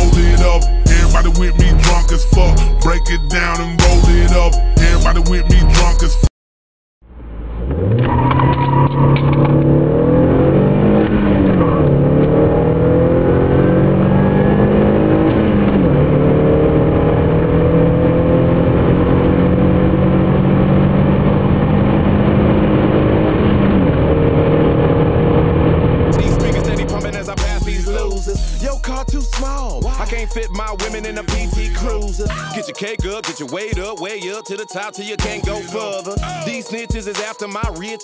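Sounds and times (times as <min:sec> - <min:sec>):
car engine accelerating: 0:07.0 - 0:32.4.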